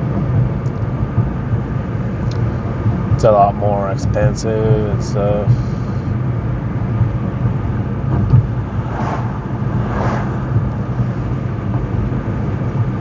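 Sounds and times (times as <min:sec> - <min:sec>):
car driving on road: 0:00.0 - 0:13.0
brief whooshes: 0:08.8 - 0:10.4.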